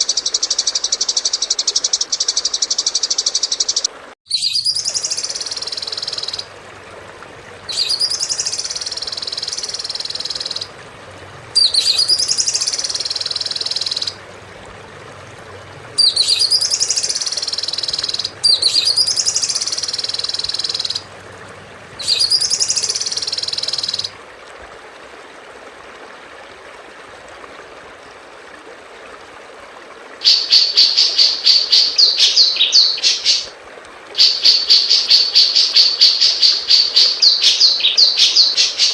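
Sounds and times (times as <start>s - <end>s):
recorded songbird song: 0.0s - 6.6s, 7.6s - 10.8s, 11.5s - 14.2s, 15.8s - 21.1s, 21.9s - 24.2s, 30.2s - 33.5s, 34.2s - 38.9s.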